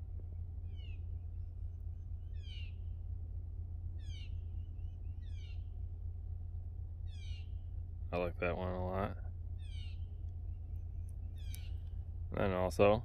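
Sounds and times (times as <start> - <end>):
steady low rumble: 0.0 - 13.0
bird falling call: 0.6 - 3.0, 4.0 - 5.8.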